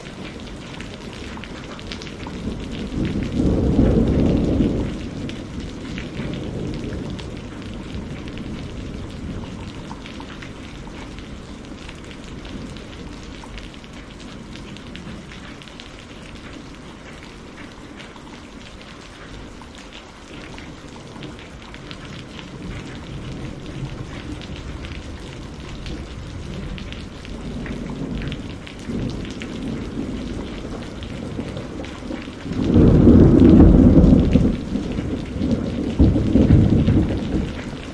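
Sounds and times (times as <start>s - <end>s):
rolling thunder rumble: 0.0s - 15.6s, 21.0s - 37.9s
steady rain: 0.0s - 37.9s
loud thunder clap: 2.3s - 8.8s, 27.4s - 37.9s.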